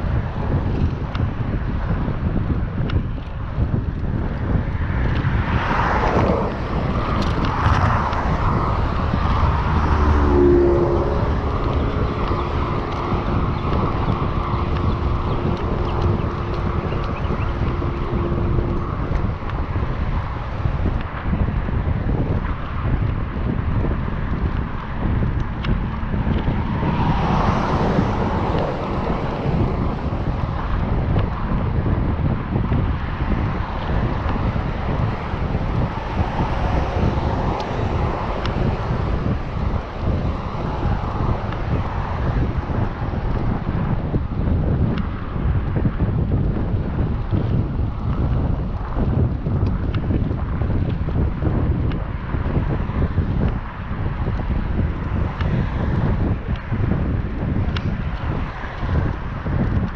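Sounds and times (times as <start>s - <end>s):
vehicle passing: 0.0s - 59.9s
wind rushing over microphone: 0.0s - 59.9s.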